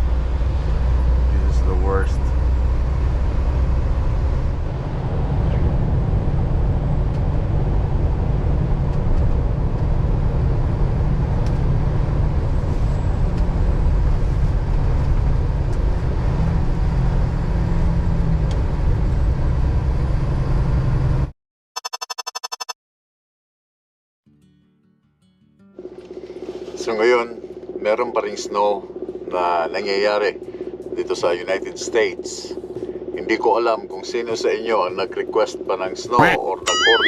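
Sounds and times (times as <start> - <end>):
truck engine and road rumble: 0.0 - 21.3, 25.8 - 37.0
short pulsing tone: 21.8 - 22.8, 36.2 - 37.0.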